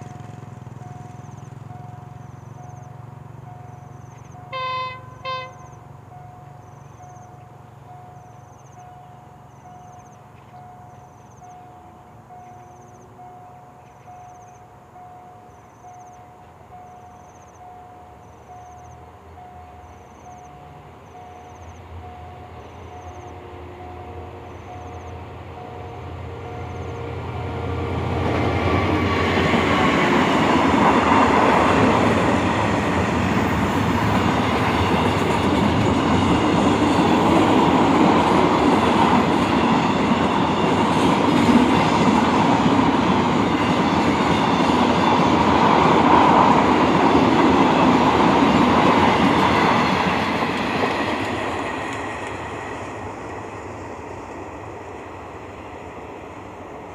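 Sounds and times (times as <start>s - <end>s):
train wheels clattering on rails: 26.6s - 56.2s.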